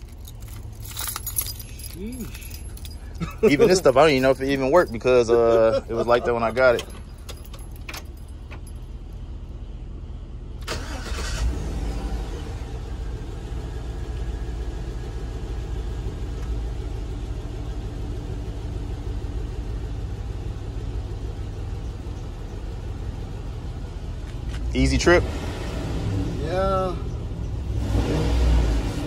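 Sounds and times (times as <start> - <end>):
engine idling: 0.0 - 25.1
engine starter cranking: 10.6 - 11.7.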